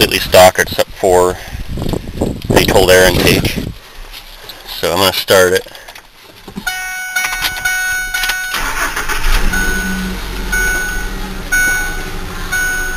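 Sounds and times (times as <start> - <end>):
warning chime: 6.7 - 12.9
truck engine idling: 7.7 - 12.9
engine starter cranking: 8.2 - 12.6.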